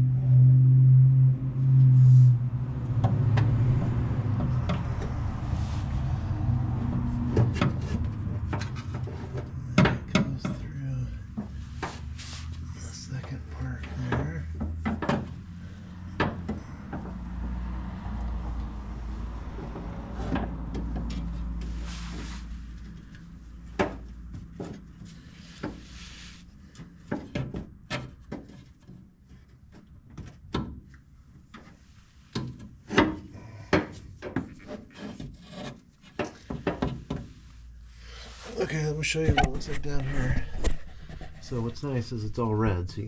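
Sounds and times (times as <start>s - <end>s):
low hum: 0.0s - 23.8s
parts rubbing and scraping: 1.9s - 17.8s, 31.6s - 42.8s.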